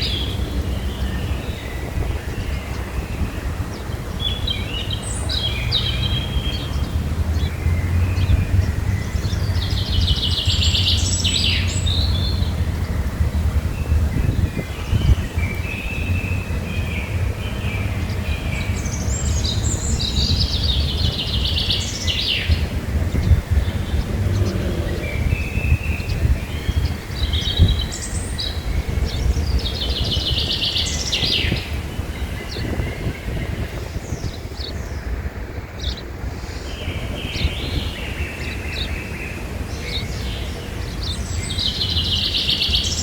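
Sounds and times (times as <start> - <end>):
birds singing and calling: 0.0 - 43.0
rapid trilled bird song: 0.0 - 43.0
steady low rumble: 6.6 - 38.9.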